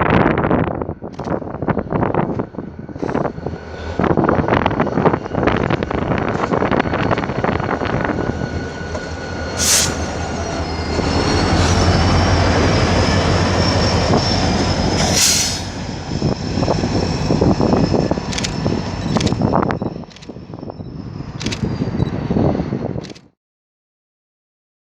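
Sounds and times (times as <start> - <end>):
train rumbling on rails: 0.0 - 23.3
wheel squeal: 7.0 - 22.7
hissing bursts: 9.6 - 10.2.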